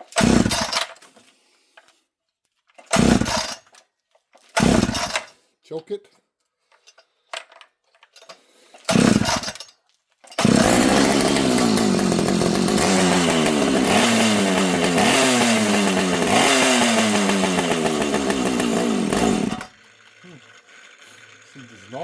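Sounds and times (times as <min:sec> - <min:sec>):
chainsaw pull start: 0:00.0 - 0:01.4, 0:02.8 - 0:03.8, 0:04.4 - 0:05.5, 0:08.2 - 0:09.7, 0:10.3 - 0:22.0
chainsaw engine running unevenly: 0:00.2 - 0:00.7, 0:03.0 - 0:03.5, 0:04.6 - 0:05.2, 0:08.9 - 0:09.5, 0:10.4 - 0:22.0.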